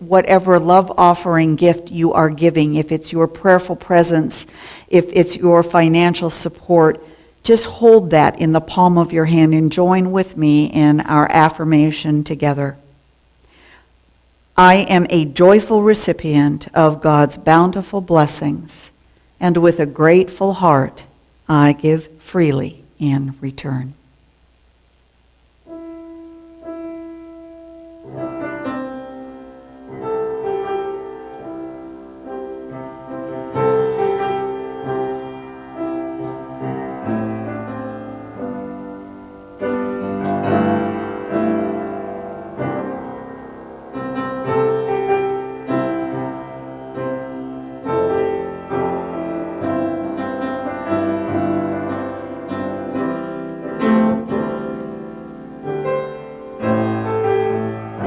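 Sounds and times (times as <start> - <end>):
slow solo piano piece: 25.7 - 58.0.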